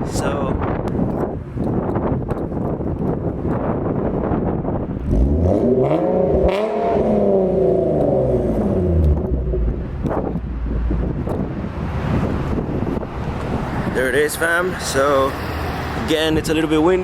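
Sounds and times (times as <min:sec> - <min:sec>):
wind buffeting microphone: 0:00.0 - 0:17.0
car engine revving: 0:05.0 - 0:13.9.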